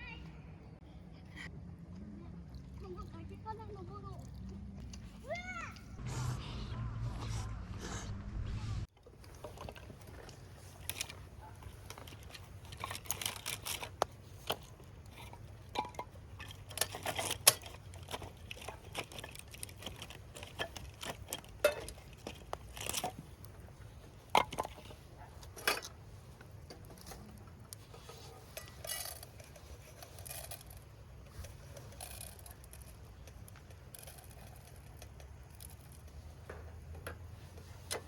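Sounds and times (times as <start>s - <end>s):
small objects clicking and clinking: 9.2s - 23.6s, 26.7s - 37.1s.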